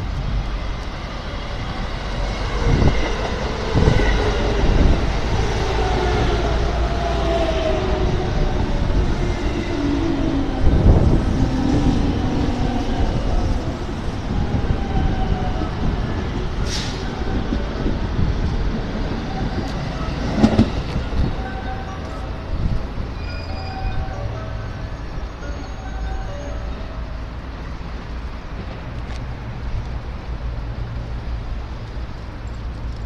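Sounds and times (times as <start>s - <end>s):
train wheels rumbling on rails: 0.0s - 26.3s.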